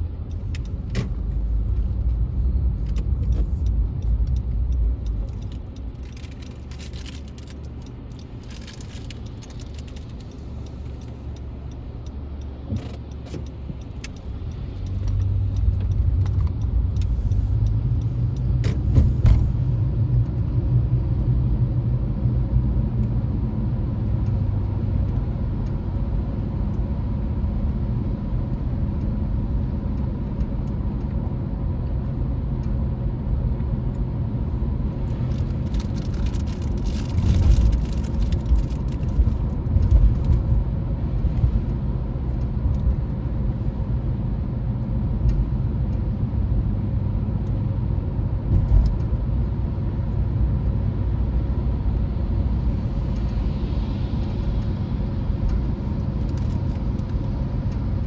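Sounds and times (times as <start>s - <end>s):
car driving rumble: 0.0s - 58.0s
crackling and bumps: 35.0s - 40.6s.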